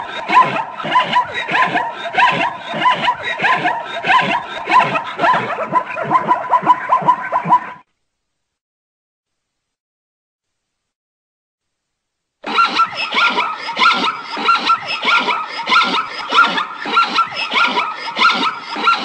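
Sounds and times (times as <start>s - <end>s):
zebra barking calls: 0.2s - 7.7s, 12.5s - 19.0s.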